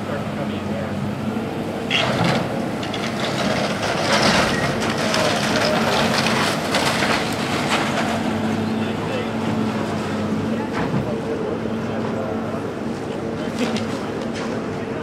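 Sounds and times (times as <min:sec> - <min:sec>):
wood and debris crunching: 0:01.9 - 0:11.1.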